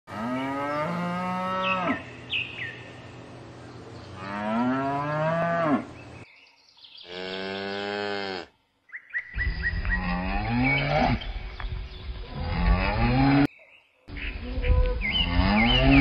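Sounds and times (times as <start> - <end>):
cow mooing: 0.1 - 2.0, 4.2 - 5.9, 7.1 - 8.5, 15.2 - 16.0.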